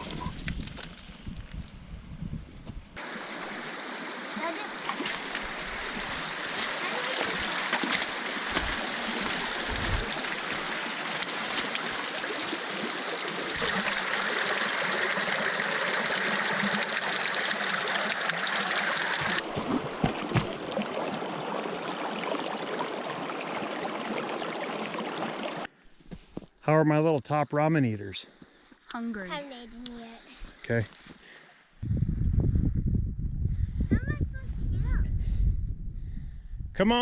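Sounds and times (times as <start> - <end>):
stream water rushing: 3.0 - 25.7.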